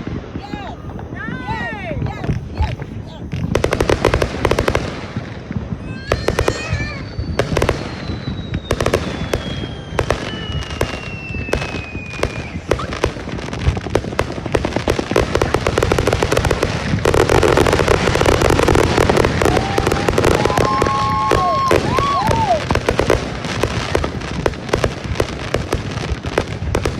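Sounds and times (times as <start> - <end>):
fireworks bangs: 0.0 - 26.9
fireworks crackling barrage: 0.0 - 26.9
high falling whistle: 5.8 - 12.9, 18.6 - 22.6.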